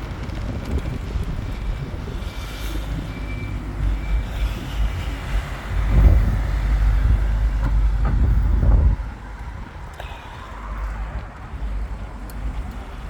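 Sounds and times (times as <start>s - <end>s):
bicycle road noise: 0.0s - 13.0s
wind on microphone: 0.0s - 13.0s.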